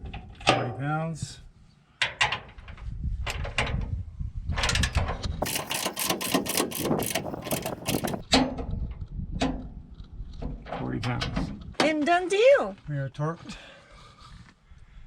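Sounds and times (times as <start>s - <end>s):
torque wrench ratcheting clicks: 5.4s - 8.2s.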